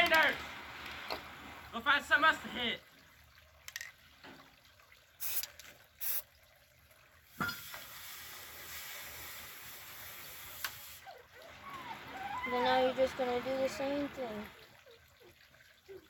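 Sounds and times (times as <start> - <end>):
aerosol spray can hissing: 5.2 - 6.2.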